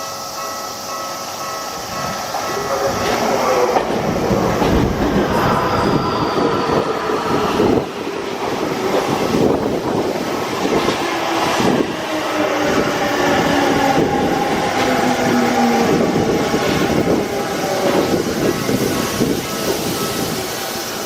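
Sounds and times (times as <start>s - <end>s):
train whining tones: 0.0s - 21.0s
train wheels clacking over rail joints: 2.4s - 9.9s.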